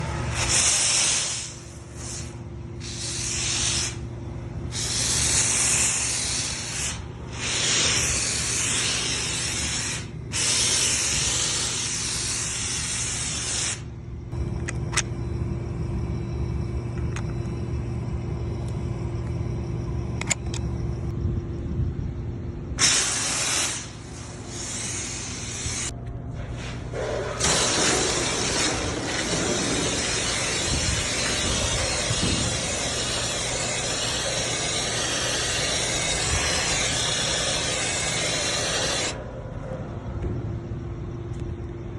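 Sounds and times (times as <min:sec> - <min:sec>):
steady low hum: 0:00.0 - 0:41.9
spray tip hissing foam: 0:04.7 - 0:13.8, 0:27.4 - 0:39.2.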